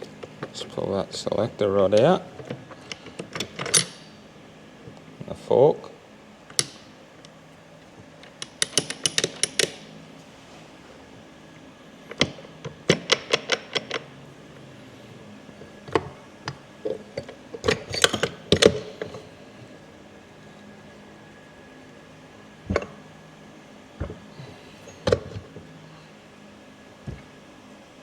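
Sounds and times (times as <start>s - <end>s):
metal parts clinking and clattering: 2.8s - 4.1s, 8.2s - 9.8s, 17.2s - 19.2s.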